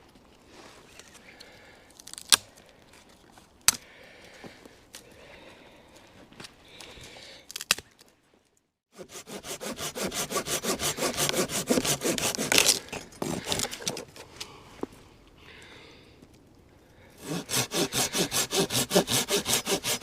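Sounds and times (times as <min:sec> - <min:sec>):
hand saw cutting wood: 0:08.9 - 0:14.2, 0:17.2 - 0:20.0.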